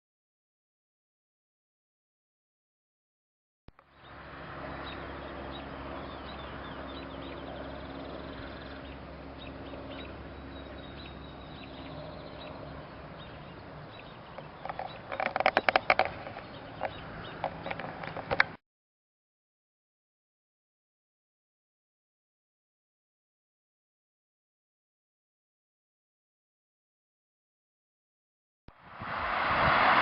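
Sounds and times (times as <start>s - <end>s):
steady low hum: 3.8s - 15.2s
wild birds chirping: 3.8s - 18.6s.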